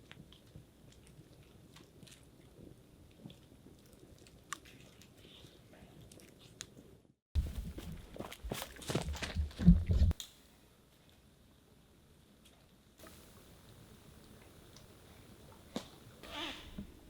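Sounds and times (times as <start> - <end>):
small clicks and crackles: 0.0 - 6.9.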